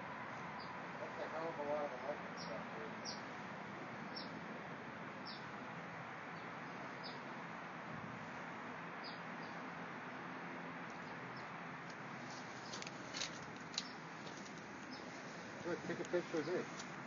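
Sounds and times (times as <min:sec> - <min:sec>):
background hiss: 0:00.0 - 0:17.0
small bird chirping: 0:02.3 - 0:03.3, 0:04.1 - 0:04.4, 0:05.2 - 0:05.5, 0:06.4 - 0:07.2, 0:09.0 - 0:09.6, 0:13.7 - 0:14.1, 0:14.8 - 0:15.2.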